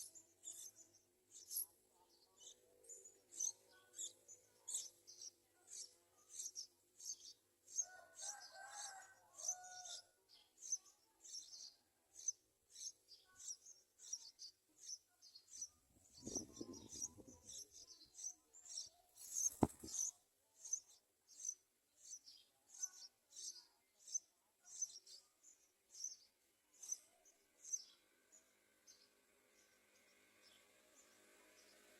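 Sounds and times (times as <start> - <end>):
birds chirping: 14.8 - 20.2.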